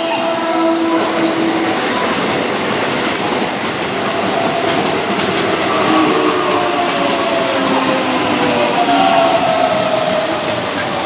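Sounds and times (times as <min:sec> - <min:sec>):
electric train running past: 0:00.0 - 0:11.0
held inverter tones: 0:04.0 - 0:11.0.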